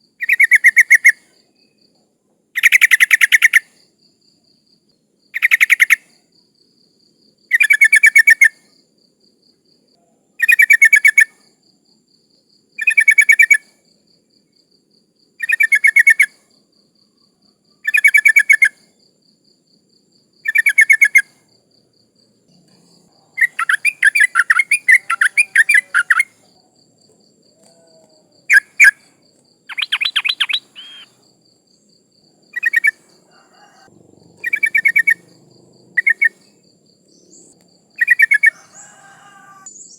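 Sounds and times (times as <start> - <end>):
bulbul bubbling calls: 23.4 - 26.3, 29.7 - 31.1, 34.4 - 35.3, 36.0 - 36.4
bird chatter: 23.4 - 26.4, 29.7 - 31.2, 32.6 - 35.4.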